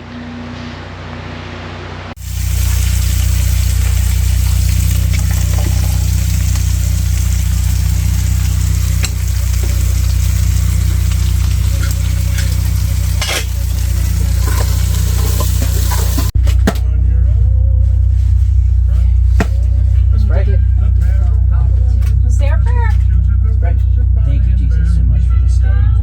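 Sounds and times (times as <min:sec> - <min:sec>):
low hum: 0:00.0 - 0:26.0
steaks sizzling in a pan: 0:02.2 - 0:16.3.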